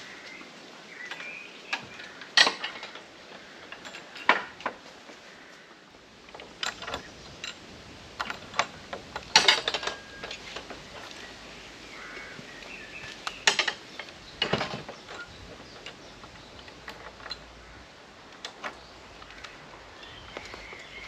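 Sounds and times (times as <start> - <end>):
faint birdsong: 0.0 - 21.0
footsteps crunching on woodland floor: 10.4 - 13.4, 18.8 - 21.0
twigs snapping: 18.3 - 21.0.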